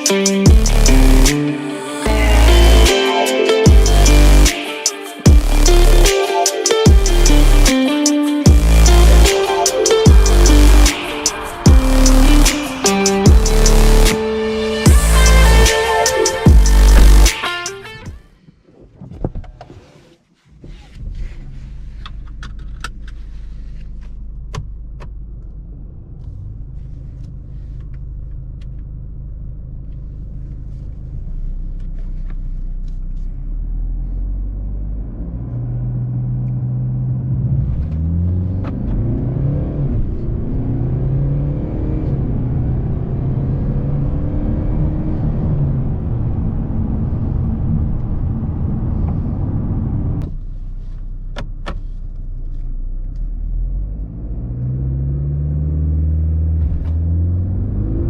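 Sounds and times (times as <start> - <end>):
diesel car engine from inside cabin: 0.4 - 1.3, 13.3 - 14.1, 20.5 - 58.0.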